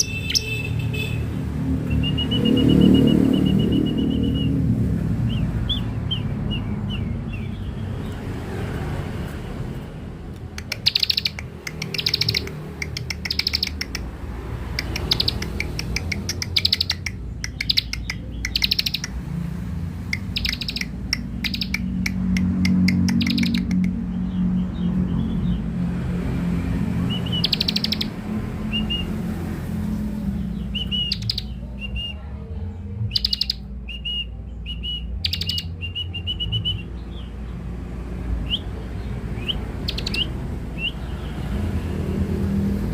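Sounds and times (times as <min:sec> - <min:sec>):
bird chirping: 0:00.0 - 0:32.4, 0:33.0 - 0:42.9
bird rattling calls: 0:10.6 - 0:14.1.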